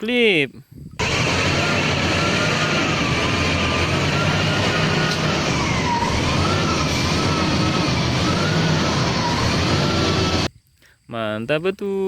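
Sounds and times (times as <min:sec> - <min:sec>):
siren wailing: 0:01.0 - 0:10.5
steady rushing noise: 0:01.0 - 0:10.5.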